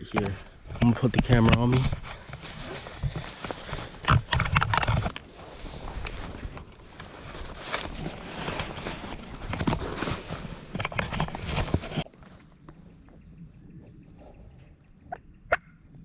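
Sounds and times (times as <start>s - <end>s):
turkeys gobbling: 14.0s - 15.8s.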